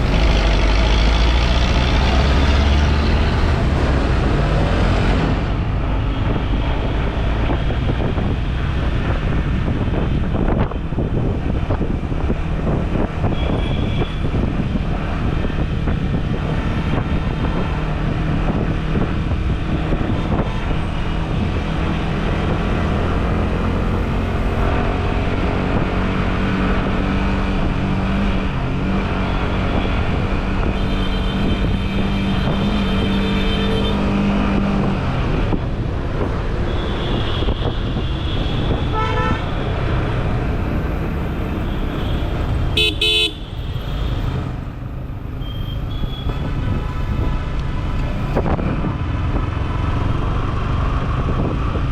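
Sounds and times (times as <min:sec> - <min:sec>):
motorcycle engine and road noise: 0:00.0 - 0:51.9
wind on microphone: 0:02.0 - 0:33.2, 0:46.3 - 0:51.9
vehicle horn: 0:13.3 - 0:14.2, 0:36.7 - 0:39.6, 0:41.5 - 0:44.2.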